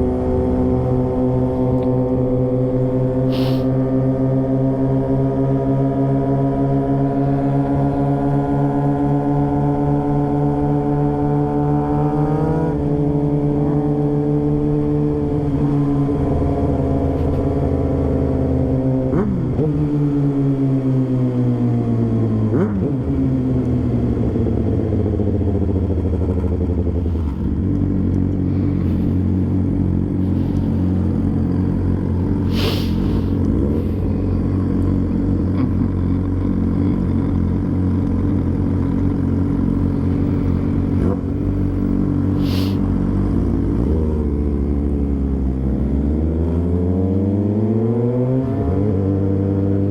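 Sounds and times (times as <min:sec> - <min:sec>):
motorcycle engine: 0:00.0 - 0:49.9.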